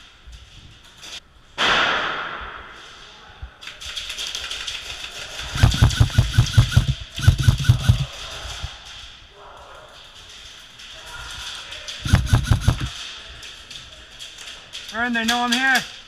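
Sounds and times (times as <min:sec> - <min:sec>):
loud bang: 0:01.6 - 0:02.7
bursts of airsoft gunshots: 0:05.6 - 0:08.1, 0:12.1 - 0:12.9
airsoft gun clicking: 0:12.1 - 0:12.9.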